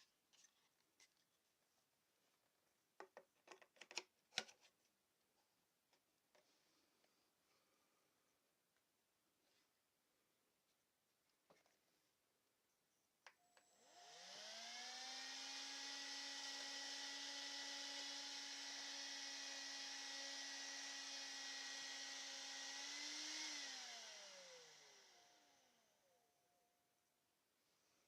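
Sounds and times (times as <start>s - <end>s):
handheld vacuum cleaner whining: 13.3s - 26.2s.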